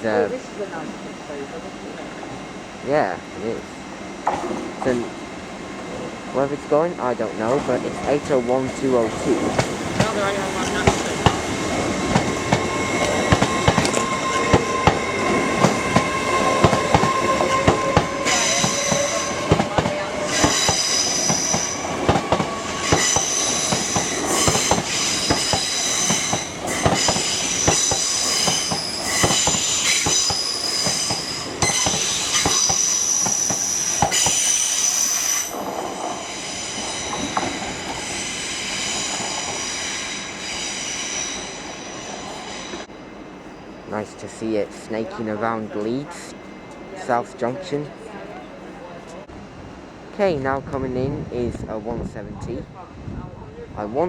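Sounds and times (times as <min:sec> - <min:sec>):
wheel flanges squealing: 0:07.2 - 0:42.9
train wheels clattering over points: 0:07.4 - 0:36.2.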